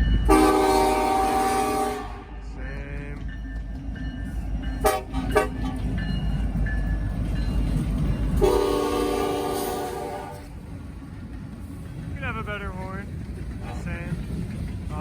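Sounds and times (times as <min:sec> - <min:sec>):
low rumble of train: 0:00.0 - 0:15.0
locomotive horn chord: 0:00.2 - 0:02.5, 0:04.8 - 0:05.7, 0:08.4 - 0:10.5.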